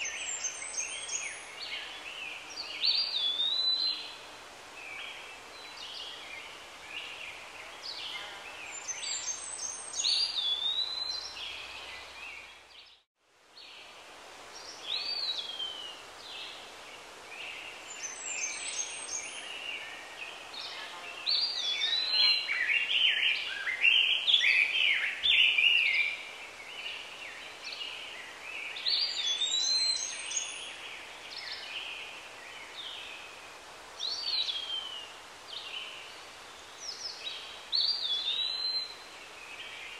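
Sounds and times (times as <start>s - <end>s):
birds singing: 0.0s - 4.2s, 17.4s - 33.4s, 34.0s - 39.9s
background hiss: 0.0s - 39.9s.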